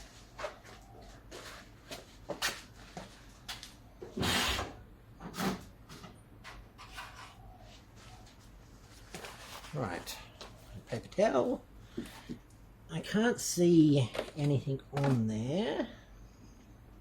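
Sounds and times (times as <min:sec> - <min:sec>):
scraping rustle: 0:06.8 - 0:10.5.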